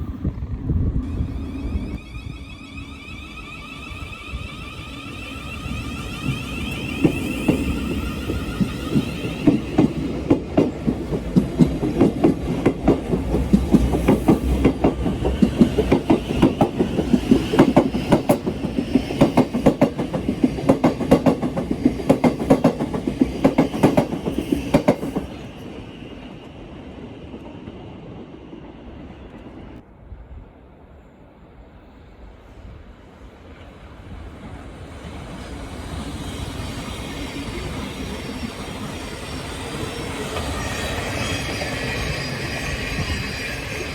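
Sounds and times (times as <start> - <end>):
train rumble: 0.0 - 43.9
train wheels clicking over joints: 4.9 - 25.5.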